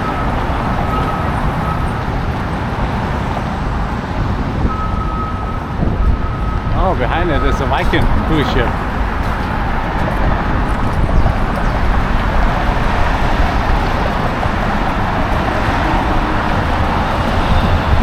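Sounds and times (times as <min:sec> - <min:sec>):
city traffic rumble: 0:00.0 - 0:18.0.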